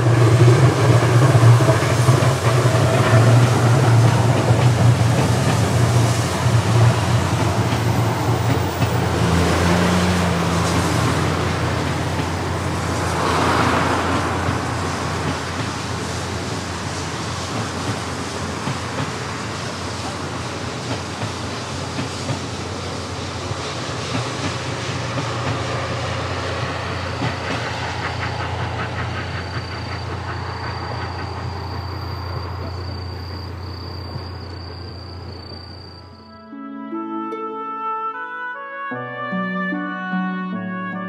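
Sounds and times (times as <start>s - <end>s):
wheels clicking over rail joints: 0.0s - 36.0s
train coaches rumbling: 0.0s - 36.4s
thin high whine: 30.0s - 36.6s.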